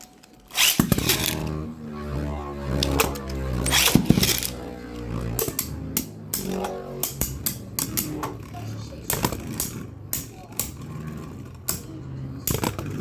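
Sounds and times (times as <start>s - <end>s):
voices: 0.1s - 13.0s
spinning tops clashing: 0.4s - 1.6s.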